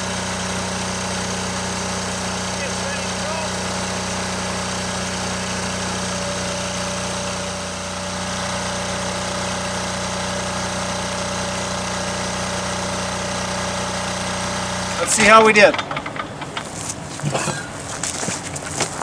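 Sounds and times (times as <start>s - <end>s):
thawing machine humming: 2.0s - 7.8s, 12.5s - 18.0s.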